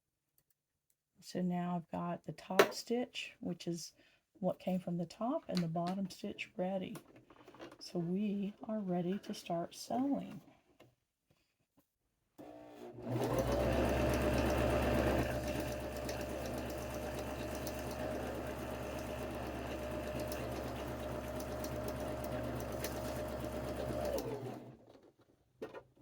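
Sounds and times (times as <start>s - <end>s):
electric sewing machine running: 12.4s - 24.8s.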